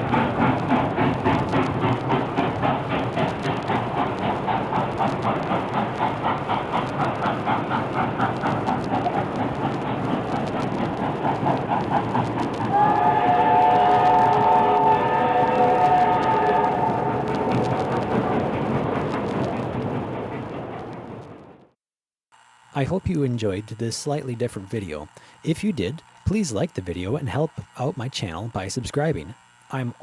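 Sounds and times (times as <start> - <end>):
steam locomotive running beat: 0.0 - 21.4
steam whistle: 12.7 - 18.2.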